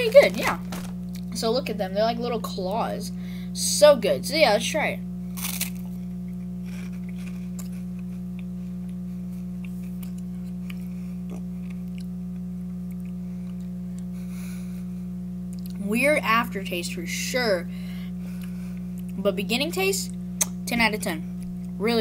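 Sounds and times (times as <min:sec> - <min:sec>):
low steady hum: 0:00.0 - 0:22.0
person chewing crunchy snack: 0:05.4 - 0:14.2.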